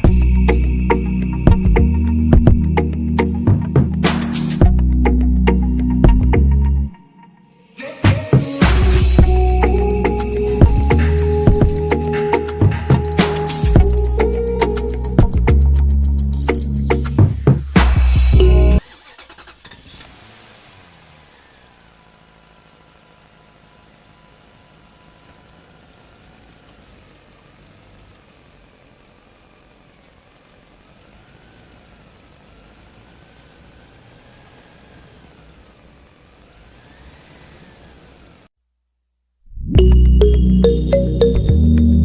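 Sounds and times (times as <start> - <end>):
small electric motor whining: 19.7 - 38.5.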